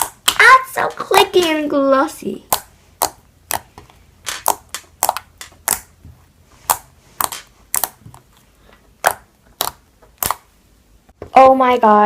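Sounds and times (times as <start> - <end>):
slime clicking and popping: 0.0 - 0.5, 2.4 - 6.0, 6.6 - 8.3, 9.0 - 10.5.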